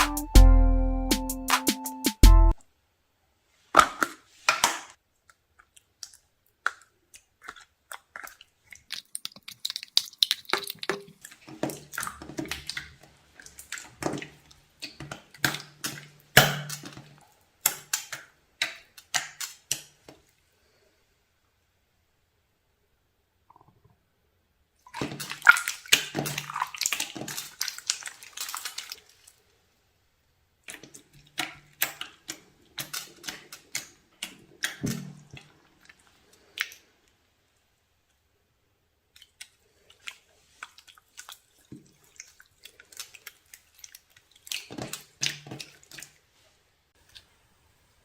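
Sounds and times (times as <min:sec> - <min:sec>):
sticky slime clicking and popping: 0:05.7 - 0:12.9, 0:14.8 - 0:17.0, 0:17.6 - 0:19.9.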